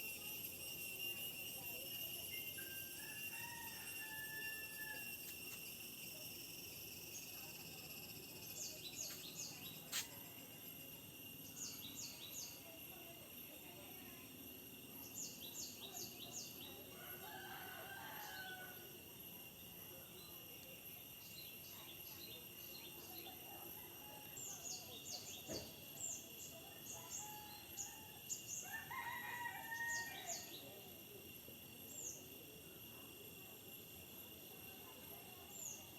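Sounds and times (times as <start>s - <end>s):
high insect drone: 0.0s - 35.9s.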